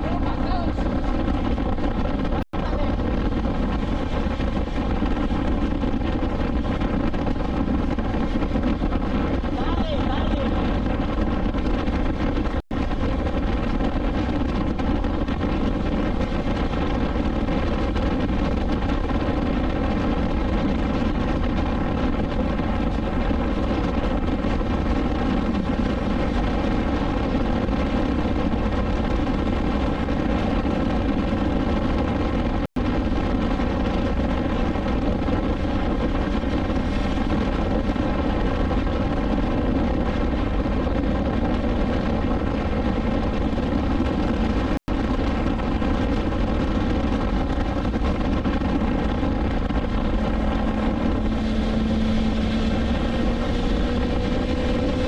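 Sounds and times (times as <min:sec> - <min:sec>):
wind and road noise: 0:00.0 - 0:55.0
motorcycle engine cruising: 0:43.9 - 0:55.0.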